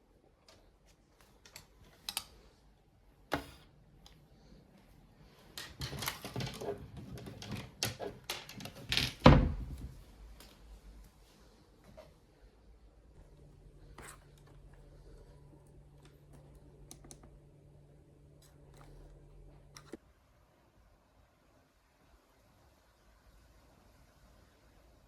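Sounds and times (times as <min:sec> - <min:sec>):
objects being handled: 0:05.2 - 0:10.6, 0:13.2 - 0:17.7.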